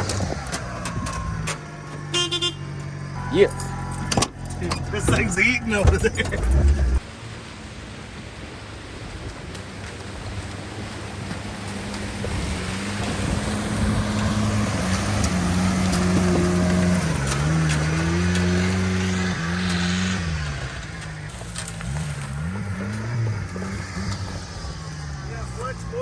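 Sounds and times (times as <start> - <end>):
small truck engine revving: 0.0 - 7.1, 11.0 - 26.0
tyres hissing on ground: 19.9 - 26.0.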